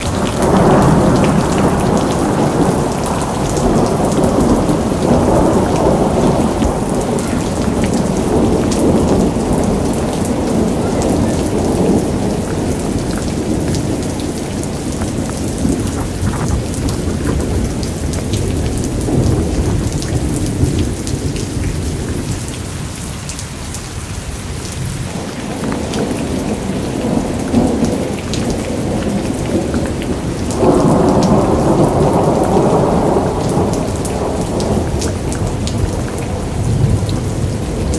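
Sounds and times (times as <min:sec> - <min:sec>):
rolling thunder: 0:00.0 - 0:22.6, 0:24.0 - 0:37.9
heavy rain falling: 0:00.0 - 0:37.9.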